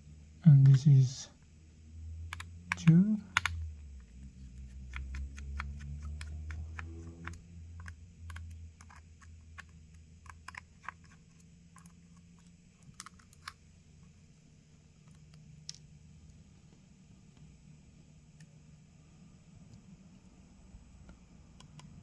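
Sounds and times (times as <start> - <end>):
low hum: 0.0 - 10.4
screwdriver clicks and ticks: 2.3 - 3.6, 4.5 - 11.2.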